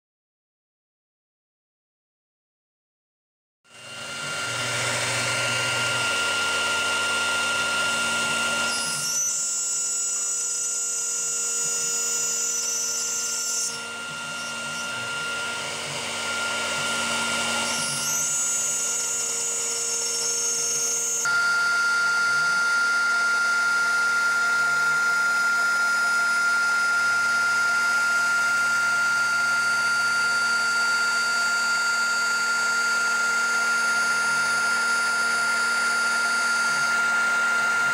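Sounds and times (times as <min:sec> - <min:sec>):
cutter cutting plastic sheet: 0:03.7 - 0:37.9
router spindle whining: 0:03.7 - 0:37.9.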